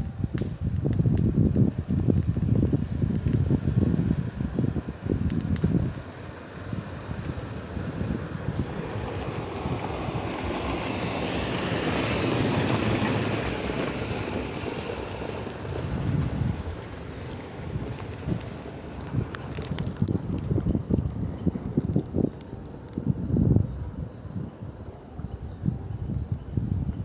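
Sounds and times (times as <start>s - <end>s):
wind buffeting microphone: 0.0s - 27.0s
vehicle passing: 6.6s - 19.5s.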